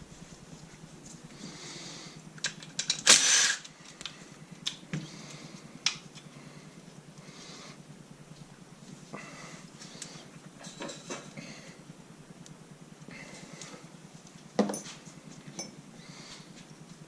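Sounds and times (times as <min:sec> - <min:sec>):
loud hissing rattle: 0:02.4 - 0:03.8
tools and metal parts clicking: 0:02.4 - 0:04.1.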